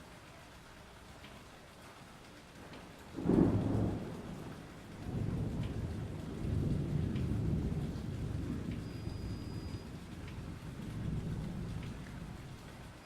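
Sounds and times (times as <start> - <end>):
steady rain: 0.0 - 13.0
thunder clap and rumble: 3.2 - 12.8.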